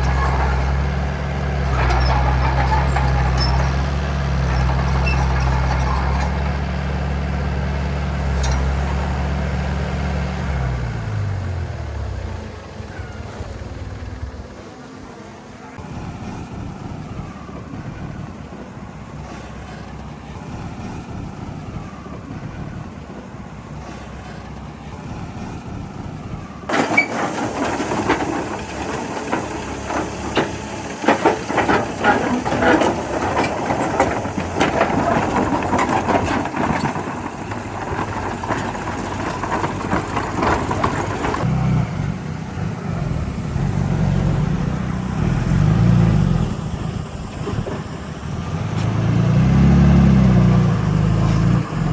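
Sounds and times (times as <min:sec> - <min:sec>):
metallic rattling and clattering: 0:00.0 - 0:06.9, 0:26.6 - 0:41.5
heavy diesel machinery running: 0:00.0 - 0:51.9.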